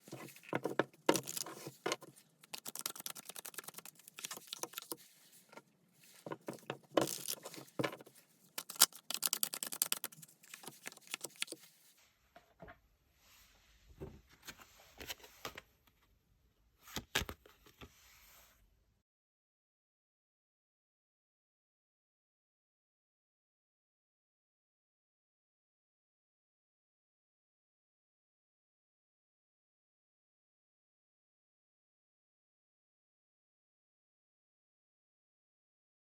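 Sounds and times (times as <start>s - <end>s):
cards shuffled by hand: 0.0s - 5.1s, 6.1s - 11.7s.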